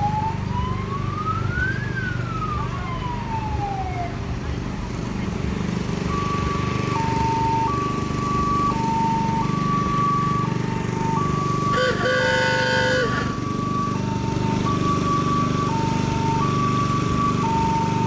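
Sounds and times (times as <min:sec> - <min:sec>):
two-tone vehicle siren: 0:00.0 - 0:04.4, 0:05.6 - 0:18.0
truck engine running: 0:00.0 - 0:18.0
horn blast: 0:11.7 - 0:13.4.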